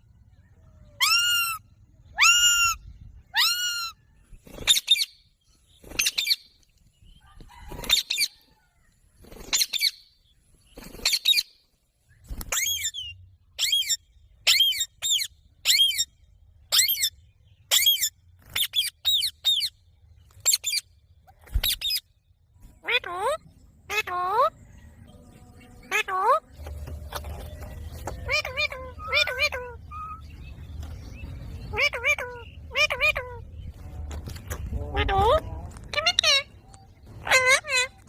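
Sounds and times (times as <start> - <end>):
parrot squawking: 1.0 - 4.0, 22.8 - 24.6, 25.8 - 26.5, 28.1 - 30.3, 31.7 - 33.5, 34.9 - 36.5, 37.2 - 38.0.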